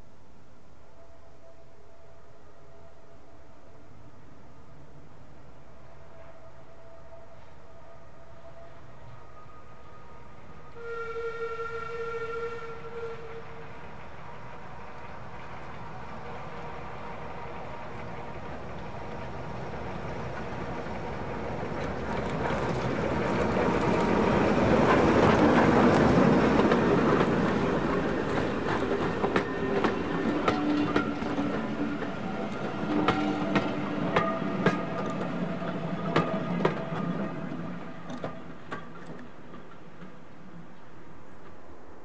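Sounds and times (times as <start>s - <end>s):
diesel locomotive passing: 3.7s - 42.0s
train wheels clicking over rail joints: 15.0s - 41.6s.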